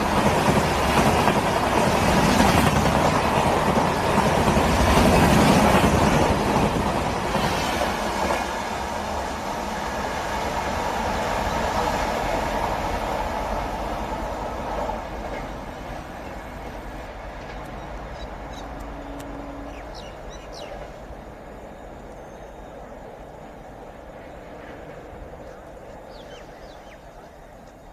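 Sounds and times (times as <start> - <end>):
train rushing past: 0.0 - 27.9
bird chirps: 17.5 - 20.9, 25.4 - 27.9.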